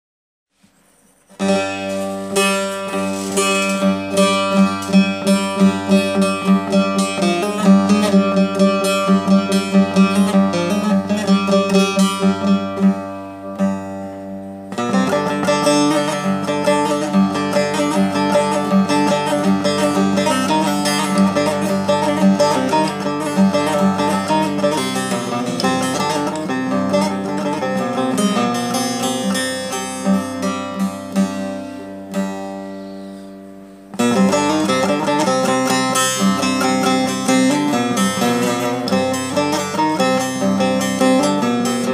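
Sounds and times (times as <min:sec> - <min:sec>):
long-necked lute plucked: 0:01.4 - 0:41.9.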